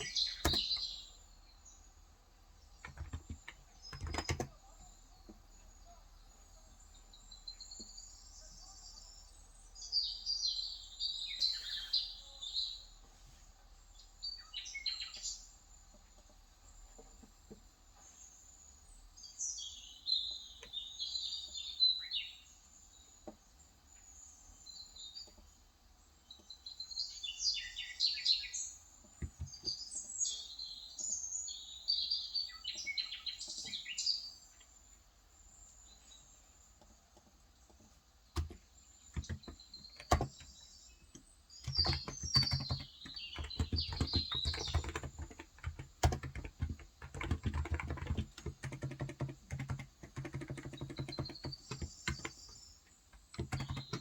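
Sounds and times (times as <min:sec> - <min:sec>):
keyboard typing: 0:00.0 - 0:00.9, 0:02.8 - 0:04.6, 0:29.2 - 0:29.8, 0:38.4 - 0:54.0
small birds twittering: 0:00.0 - 0:54.0.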